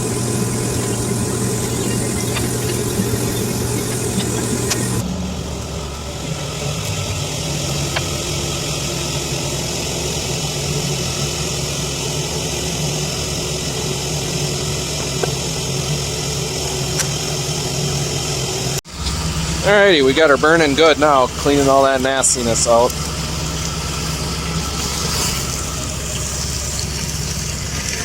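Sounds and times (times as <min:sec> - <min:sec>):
constant hiss: 0:00.0 - 0:28.0
machine humming: 0:00.0 - 0:28.0.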